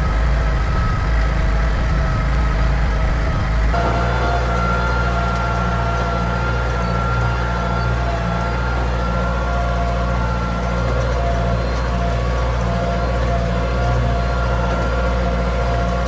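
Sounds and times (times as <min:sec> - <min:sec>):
high-pitched whine: 0:00.0 - 0:09.4
tractor diesel engine running: 0:00.0 - 0:16.0.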